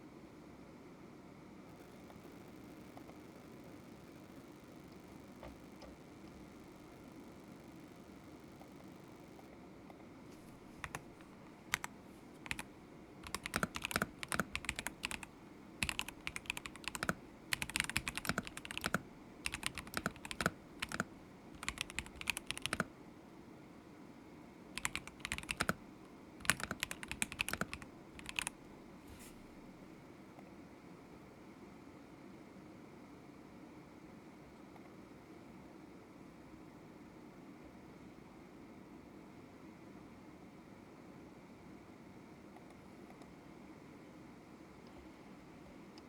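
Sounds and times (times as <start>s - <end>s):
mechanical keyboard typing: 10.4s - 22.9s, 24.8s - 25.8s, 26.4s - 28.6s.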